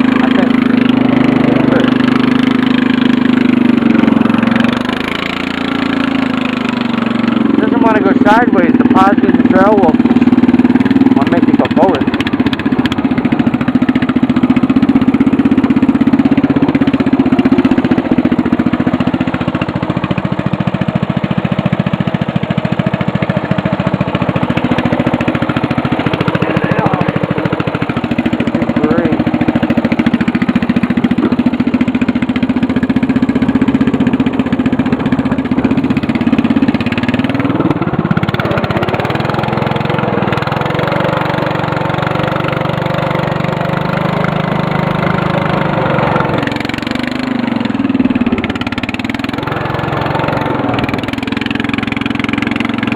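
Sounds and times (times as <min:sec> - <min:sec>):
riding mower engine running: 0:00.0 - 0:52.9.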